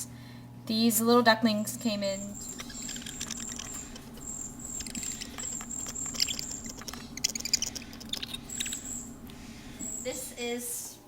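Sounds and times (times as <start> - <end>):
ducklings peeping: 2.4 - 10.2
light clicking and pattering: 2.5 - 9.4.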